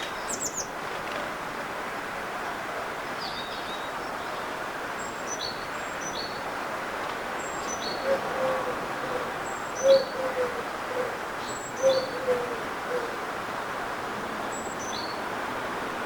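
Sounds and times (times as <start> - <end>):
dove cooing: 7.8 - 13.3.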